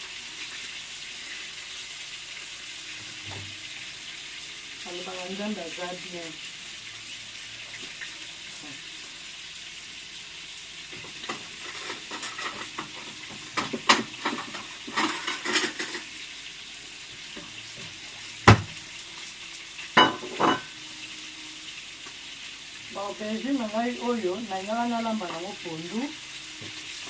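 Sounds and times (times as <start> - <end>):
food sizzling in a pan: 0.0 - 27.0
utensil scraping a pot: 11.3 - 13.2, 14.2 - 16.1.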